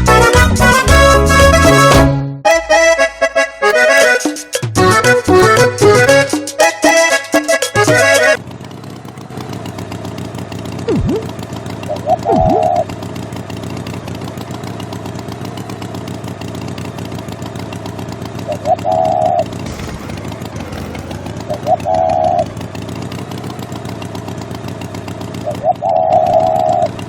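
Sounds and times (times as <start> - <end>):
tractor engine running: 0.0 - 2.1, 2.8 - 27.0
music: 0.0 - 8.4.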